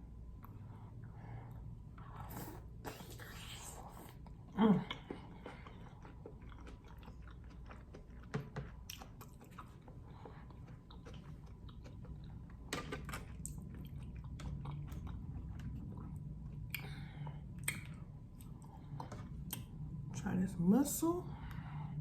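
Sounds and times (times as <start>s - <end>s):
faint low hum: 0.0s - 22.0s
chewing and biting food: 2.0s - 17.0s.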